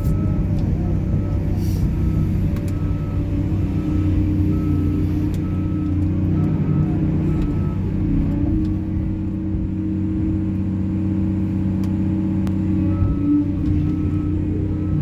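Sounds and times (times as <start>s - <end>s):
two-tone warning alarm beeping: 0.0s - 7.8s, 12.8s - 15.0s
diesel machinery rumbling: 0.0s - 15.0s.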